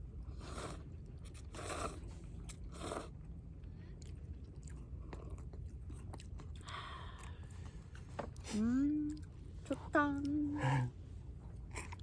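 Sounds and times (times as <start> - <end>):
chewing with small clicks: 0.9 - 9.4.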